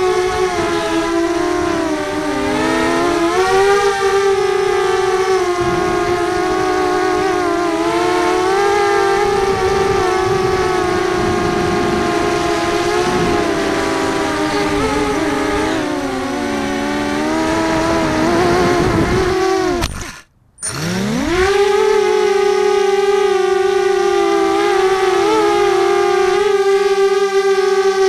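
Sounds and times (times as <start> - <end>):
quadcopter motors whining: 0.0 - 28.0.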